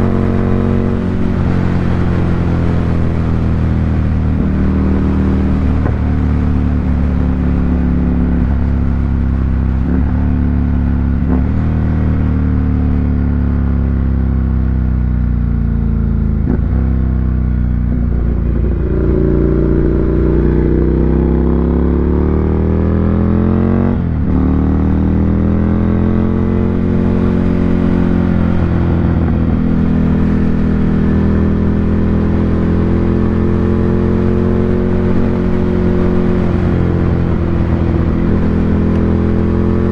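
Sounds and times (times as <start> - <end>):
motorcycle engine running: 14.6 - 25.8.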